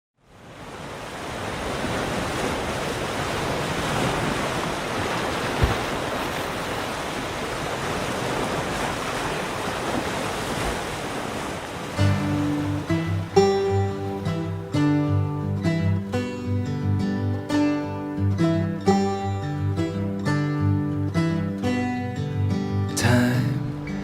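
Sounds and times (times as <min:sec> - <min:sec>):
ocean surf: 0:00.2 - 0:16.8
wind: 0:00.2 - 0:24.0
low thump: 0:05.6 - 0:06.0.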